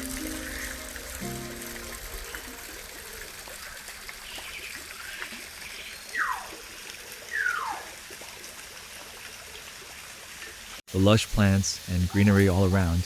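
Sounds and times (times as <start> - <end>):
water trickling: 0.0 - 13.0
bird whistles falling in pitch: 6.1 - 6.5.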